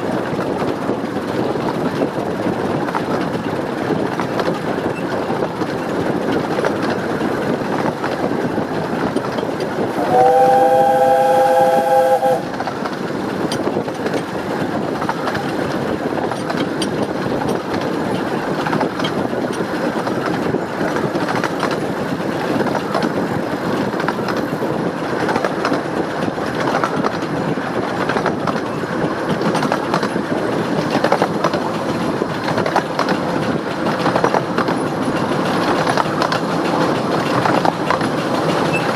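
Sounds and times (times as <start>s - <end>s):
steam locomotive exhaust beating: 0.0s - 38.9s
train rumbling on rails: 0.0s - 38.9s.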